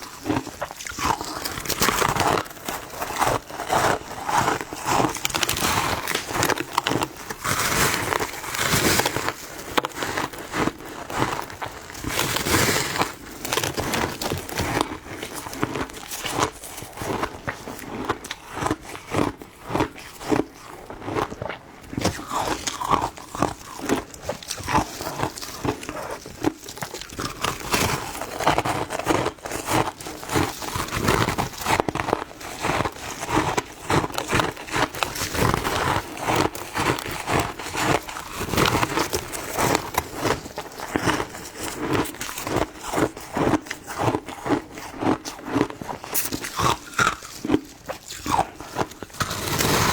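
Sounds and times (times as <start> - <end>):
person crunching ice: 0.0 - 49.9.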